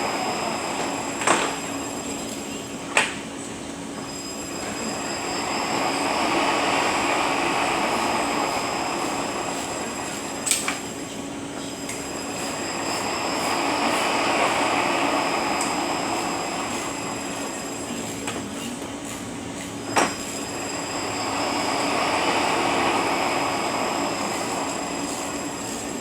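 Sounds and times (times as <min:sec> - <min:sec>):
transmission whine and rumble: 0:00.0 - 0:26.0.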